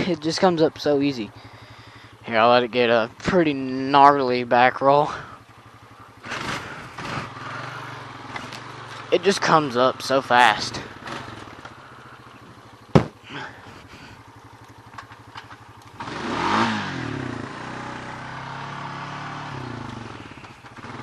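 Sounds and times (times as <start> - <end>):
four-wheeler engine running: 0.0 - 21.0
sharp knock: 12.9 - 13.2.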